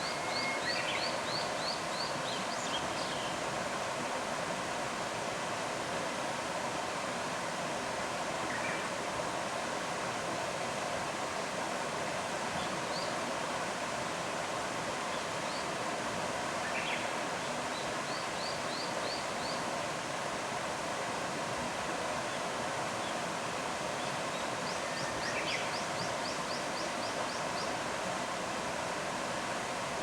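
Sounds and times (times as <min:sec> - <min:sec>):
faint high bird chirps: 0:00.0 - 0:01.8
flowing stream water: 0:00.0 - 0:30.0.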